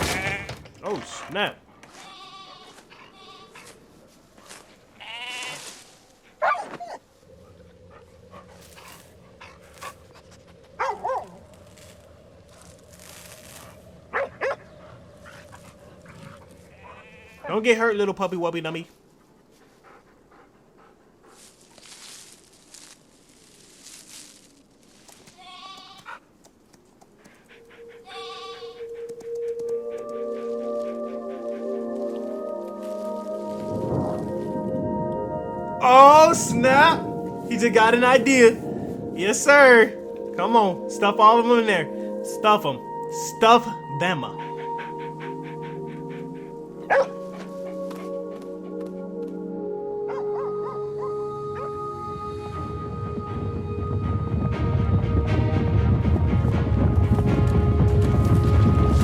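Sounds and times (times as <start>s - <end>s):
animal bleating: 0.0s - 0.7s, 1.8s - 3.7s, 5.0s - 5.8s, 16.7s - 17.5s, 25.3s - 26.2s, 28.0s - 28.8s
low steady soundtrack background: 7.2s - 21.2s, 27.2s - 59.0s
held music tone: 27.6s - 59.0s.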